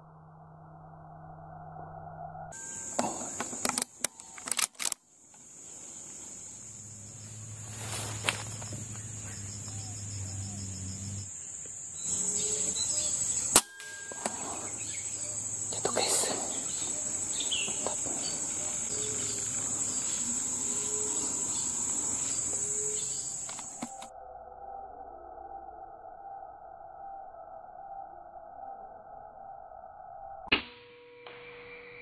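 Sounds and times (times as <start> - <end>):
insect drone: 0.0 - 32.0
small click: 3.4 - 5.4
sharp crack: 13.5 - 14.8.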